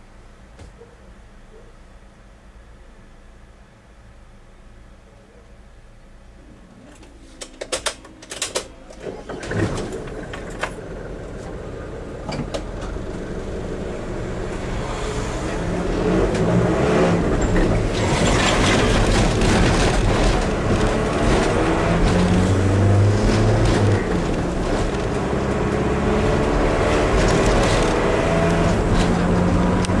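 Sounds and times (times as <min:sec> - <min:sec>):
diesel train engines working: 0:05.8 - 0:25.5.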